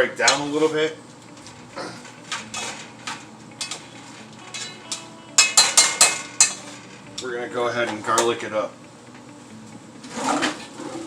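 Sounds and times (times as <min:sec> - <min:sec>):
metal kitchenware clinking: 0:02.0 - 0:07.3.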